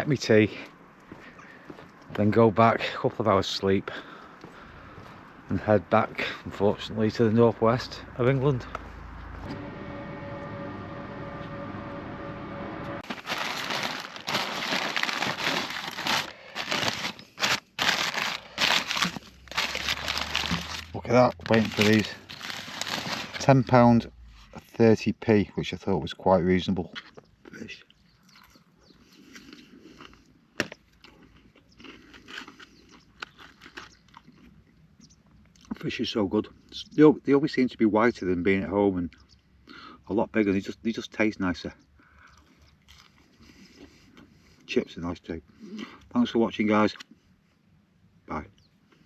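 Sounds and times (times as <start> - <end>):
low steady hum: 4.0 - 24.8
person chewing with crisp crunches: 13.0 - 23.4, 26.8 - 35.8, 42.2 - 44.4
paper wrapping crinkling: 13.0 - 23.7.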